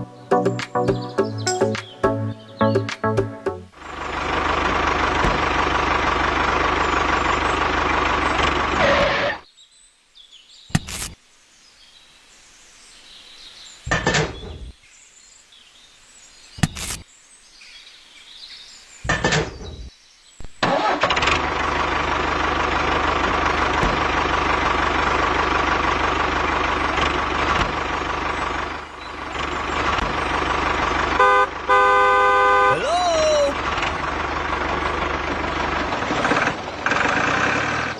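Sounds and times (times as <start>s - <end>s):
motor running: 3.8s - 9.4s, 21.4s - 31.8s.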